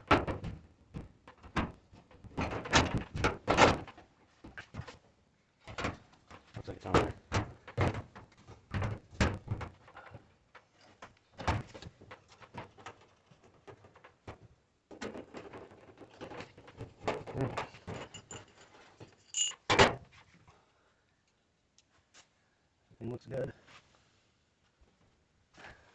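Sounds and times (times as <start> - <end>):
sheet metal panels knocking and rattling: 0.0 - 5.0, 5.6 - 18.8
metallic clink: 18.0 - 19.7.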